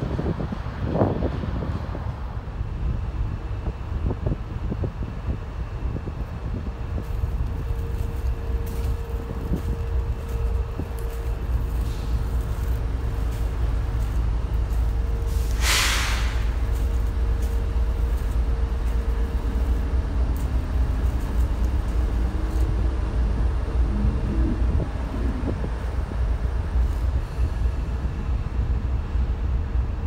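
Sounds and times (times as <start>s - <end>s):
train wheels rumbling on rail: 0.0s - 30.0s
brief hiss: 15.2s - 17.0s.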